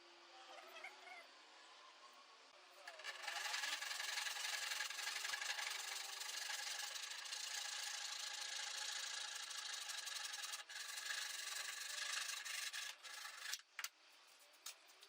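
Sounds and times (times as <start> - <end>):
power tool rasping: 2.8 - 13.7.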